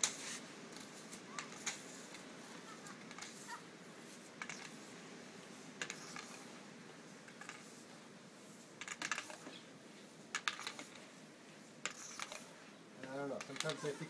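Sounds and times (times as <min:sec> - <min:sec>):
broom crunching into snow: 0:00.0 - 0:10.3.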